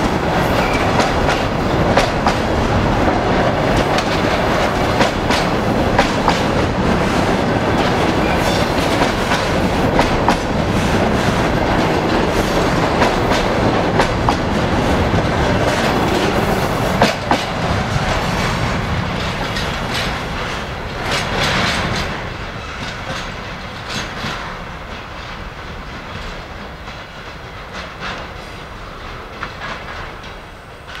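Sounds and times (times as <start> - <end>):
freight wagons rolling on rails: 0.0 - 31.0
wheels clicking over rail joints: 0.0 - 31.0.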